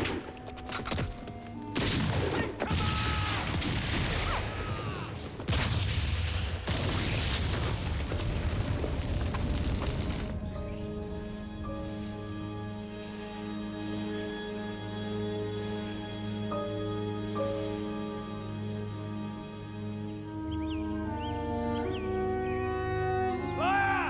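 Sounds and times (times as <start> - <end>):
film music: 0.0 - 7.3, 8.3 - 24.0
heavy artillery explosions: 1.8 - 10.6.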